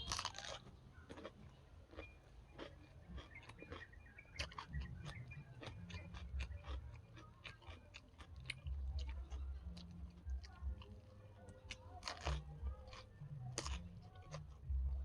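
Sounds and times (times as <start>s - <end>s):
person chewing crunchy food: 0.0s - 15.0s.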